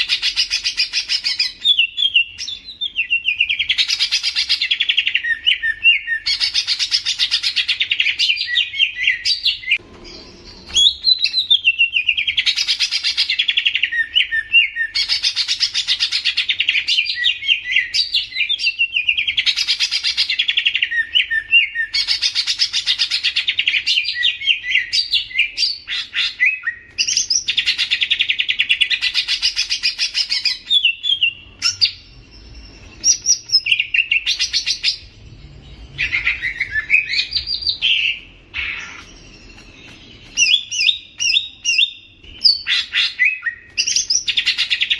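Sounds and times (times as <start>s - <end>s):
sliding whistled bird notes: 30.3s - 44.9s
bird trilling: 32.8s - 44.9s.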